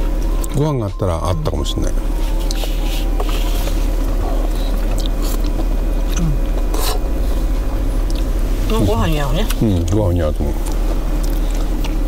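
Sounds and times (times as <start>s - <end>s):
steady low hum: 0.0s - 12.0s
person chewing food: 2.2s - 8.4s, 9.5s - 12.0s.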